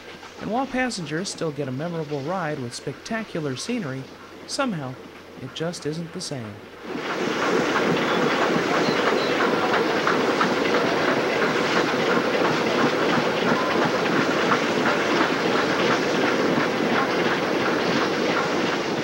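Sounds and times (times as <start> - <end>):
train running noise: 0.0 - 19.0
wheels clacking over rail joints: 0.0 - 19.0.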